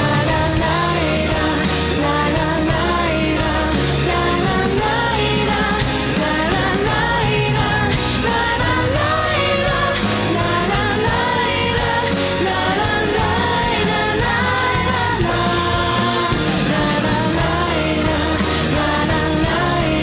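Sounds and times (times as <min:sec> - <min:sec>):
band accompaniment: 0:00.0 - 0:20.0
woman singing pop song: 0:00.0 - 0:20.0.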